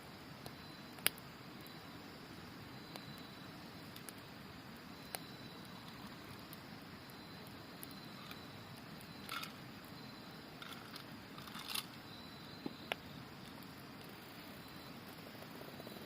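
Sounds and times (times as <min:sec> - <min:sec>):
campfire crackling: 0:00.0 - 0:16.0
sharp snaps of fire: 0:00.1 - 0:15.6
insects singing: 0:00.1 - 0:16.0.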